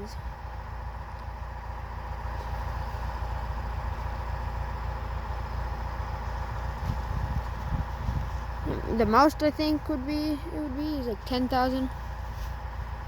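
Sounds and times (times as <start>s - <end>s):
tractor engine rumbling: 0.0s - 13.0s.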